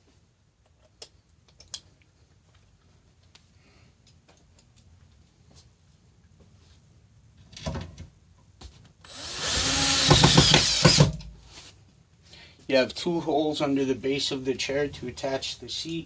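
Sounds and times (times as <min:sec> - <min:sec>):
power drill driving screw: 0:09.0 - 0:11.2.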